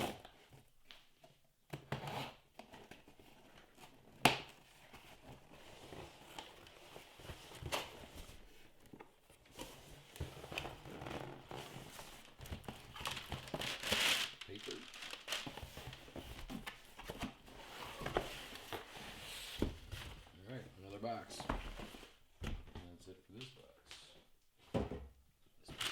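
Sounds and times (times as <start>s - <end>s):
cardboard and paper rustling: 2.6s - 22.2s, 25.7s - 25.9s
tape tearing: 13.0s - 16.0s.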